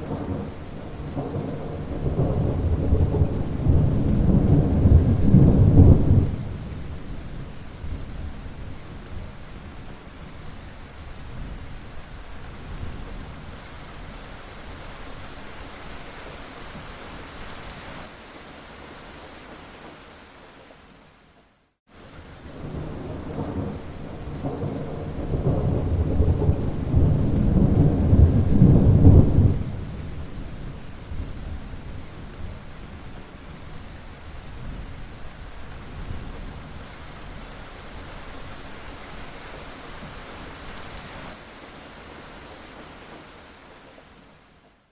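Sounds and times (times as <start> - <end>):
rolling thunder: 0.0 - 8.8, 22.4 - 32.4
heavy rain: 0.0 - 44.9.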